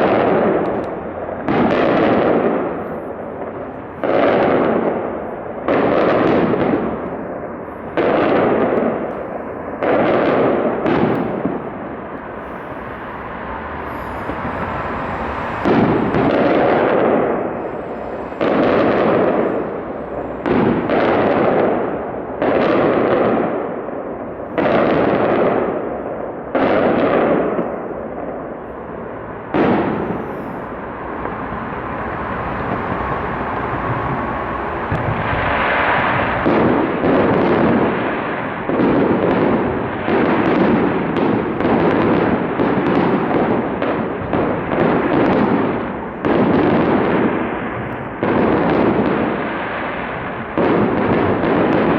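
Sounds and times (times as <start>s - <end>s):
fireworks bursting: 0.0s - 51.9s.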